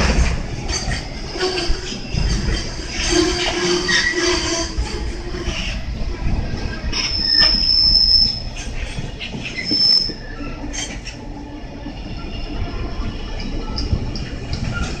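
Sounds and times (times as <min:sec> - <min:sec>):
wagon wheels rumbling and clanking: 0:00.0 - 0:11.2
high-pitched brake squeals: 0:02.9 - 0:04.9, 0:07.0 - 0:08.6, 0:09.5 - 0:11.0.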